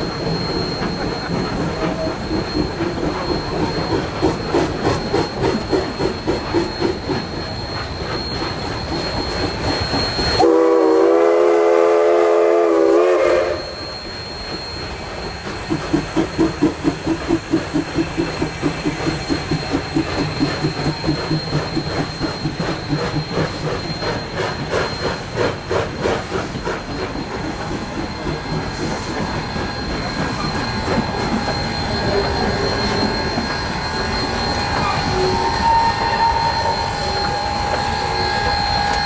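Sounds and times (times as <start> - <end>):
steam locomotive exhaust beats: 0.0 - 39.0
steam whistle blast: 10.2 - 14.2, 30.2 - 39.0.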